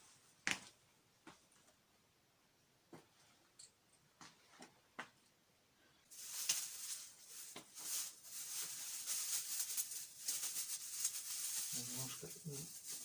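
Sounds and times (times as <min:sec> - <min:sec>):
rustling and scraping: 0:06.1 - 0:13.0.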